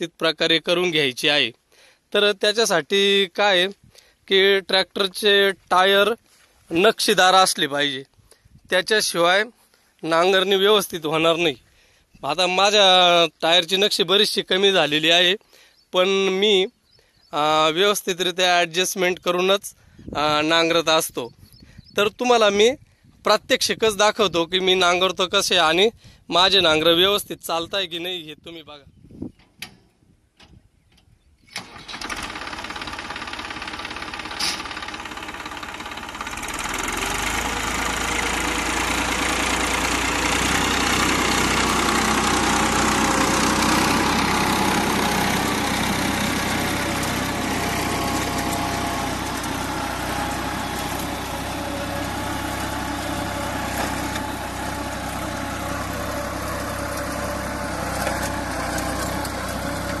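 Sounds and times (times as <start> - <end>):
tractor diesel engine: 1.8 - 8.0, 8.8 - 15.3, 31.5 - 60.0.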